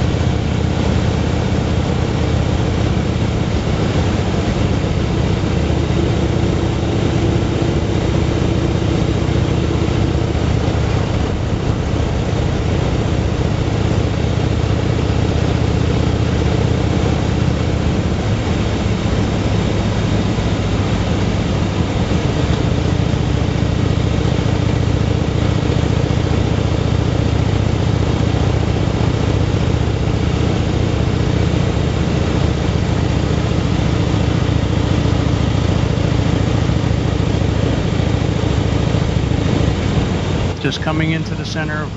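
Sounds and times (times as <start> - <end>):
motorcycle engine running: 0.0 - 41.2
rush of noise: 37.4 - 41.9.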